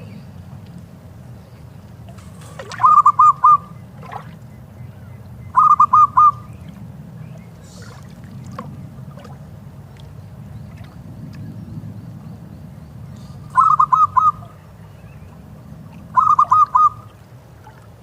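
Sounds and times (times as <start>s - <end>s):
low background rush: 0.0s - 18.0s
dove cooing: 2.2s - 4.3s, 5.6s - 6.5s, 13.2s - 14.6s, 16.1s - 17.1s.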